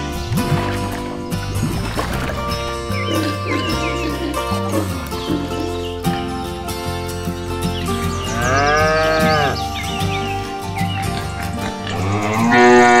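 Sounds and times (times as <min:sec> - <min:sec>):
background music: 0:00.0 - 0:13.0
cow mooing: 0:08.3 - 0:09.7, 0:11.2 - 0:13.0.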